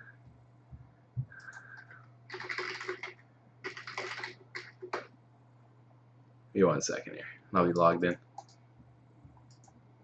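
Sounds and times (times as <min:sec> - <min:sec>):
low electrical hum: 0:00.0 - 0:10.0
typing on computer keyboard: 0:01.4 - 0:05.1.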